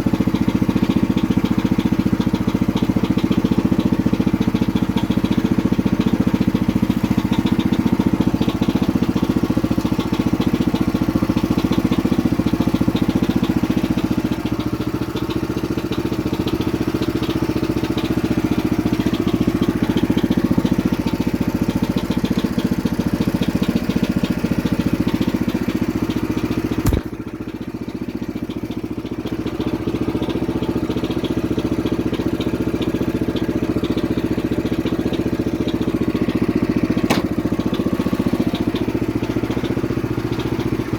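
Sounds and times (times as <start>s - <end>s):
tractor engine running: 0.0s - 40.9s
sharp click: 26.8s - 27.1s, 37.1s - 37.3s.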